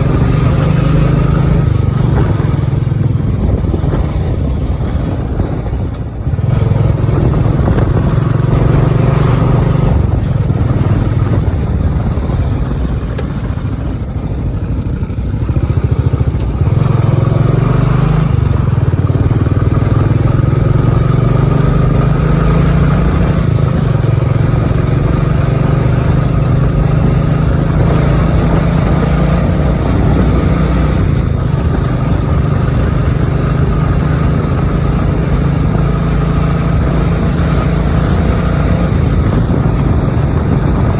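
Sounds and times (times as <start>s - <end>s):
motorcycle engine drone: 0.0s - 40.9s.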